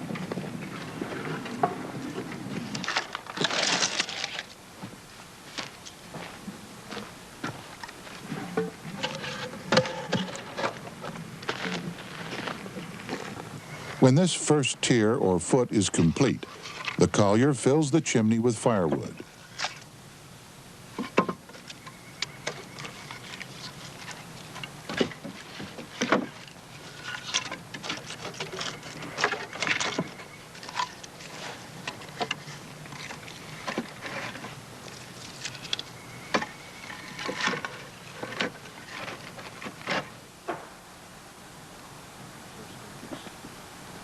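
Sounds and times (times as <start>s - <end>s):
firewood knocking and clattering: 8.5s - 11.7s.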